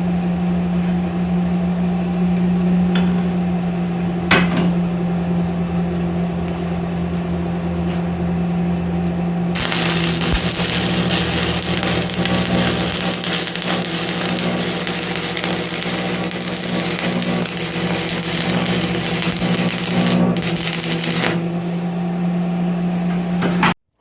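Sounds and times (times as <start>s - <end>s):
electric motor humming: 9.6s - 21.7s.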